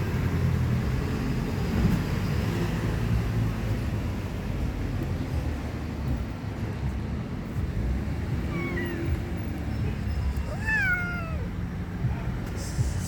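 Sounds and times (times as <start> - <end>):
cat meowing: 8.5 - 9.4, 10.3 - 11.6.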